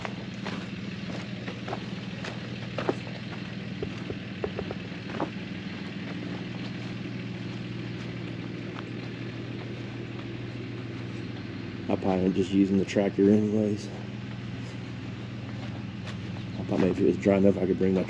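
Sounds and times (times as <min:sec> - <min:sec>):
pickup truck engine running: 0:00.0 - 0:18.0.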